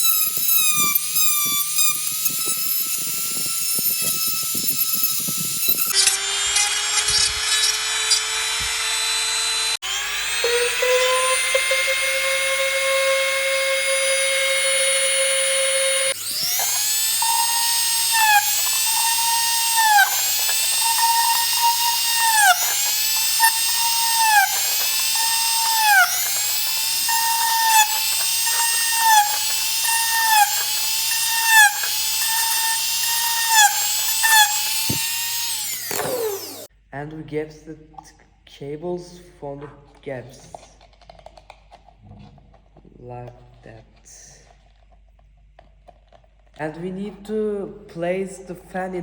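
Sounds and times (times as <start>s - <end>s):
rotary tool grinding plastic: 0.0s - 36.7s.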